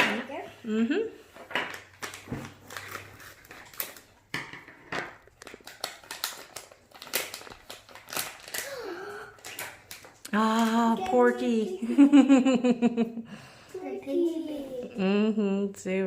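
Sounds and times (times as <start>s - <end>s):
plastic packaging crinkling: 1.7s - 4.3s, 4.9s - 11.8s.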